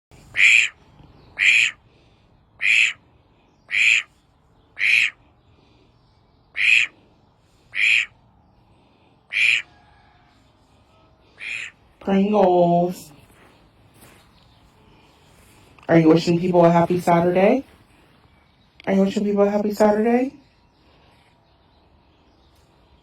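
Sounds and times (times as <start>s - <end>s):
drake quacking hoarsely: 0.2s - 1.9s, 2.6s - 3.1s, 3.7s - 4.2s, 4.8s - 5.3s, 6.5s - 7.0s, 7.7s - 8.2s, 9.3s - 9.7s, 11.4s - 11.9s.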